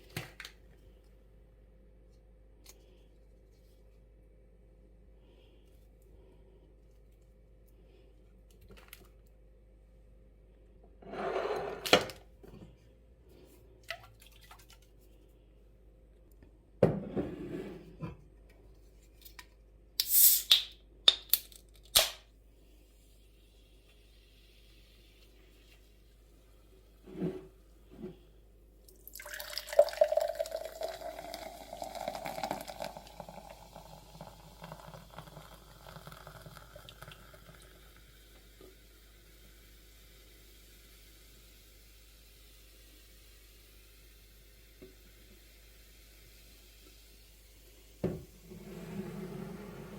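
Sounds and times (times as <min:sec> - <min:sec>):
water pouring into a container: 0:28.9 - 0:38.1.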